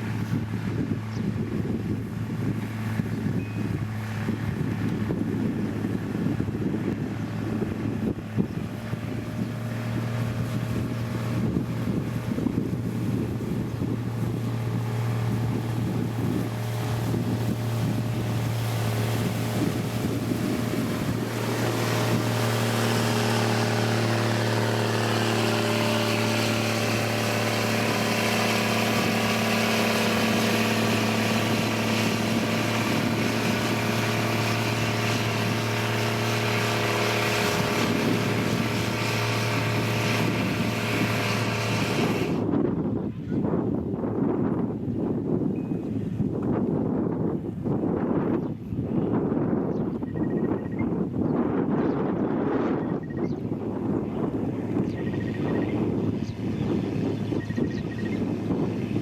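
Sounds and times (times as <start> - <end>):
heavy diesel engine running: 0.0 - 42.6.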